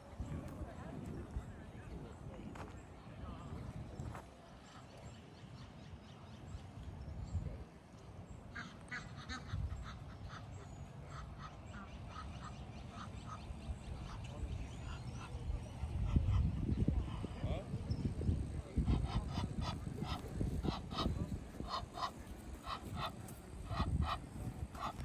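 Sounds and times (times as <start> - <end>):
wind rumble on microphone: 0.0 - 5.3, 6.0 - 7.7, 9.2 - 10.4, 13.2 - 25.0
waterfowl calling: 8.5 - 15.4, 19.0 - 25.0.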